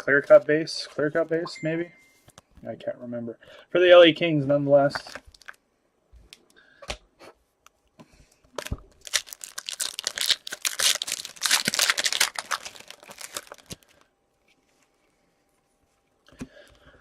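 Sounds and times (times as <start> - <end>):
foil wrapper tearing and crinkling: 5.3 - 5.6, 8.6 - 14.1.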